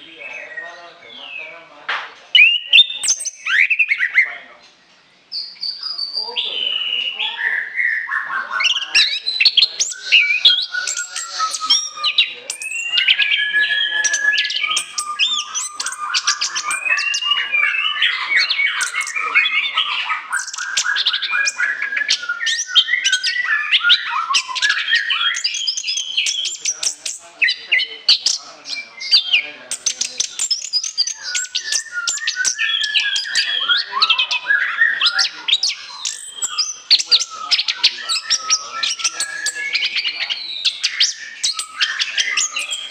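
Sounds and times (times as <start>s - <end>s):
thrush singing: 8.6s - 42.9s.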